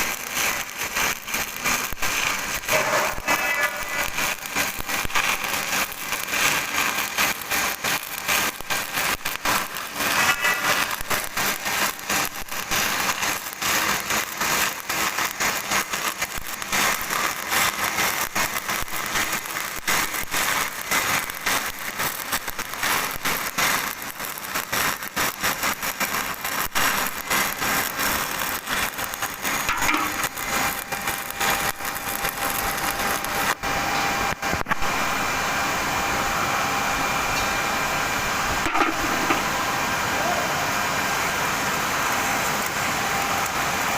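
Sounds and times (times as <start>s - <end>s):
welding arc crackling: 0.0s - 43.9s.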